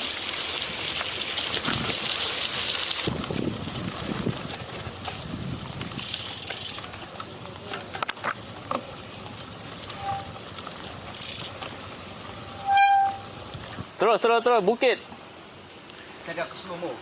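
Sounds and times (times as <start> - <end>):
trail background noise: 0.0 - 17.0
bike rattling clicks: 2.8 - 12.6
high-pitched squeal: 9.9 - 10.4, 12.5 - 13.4.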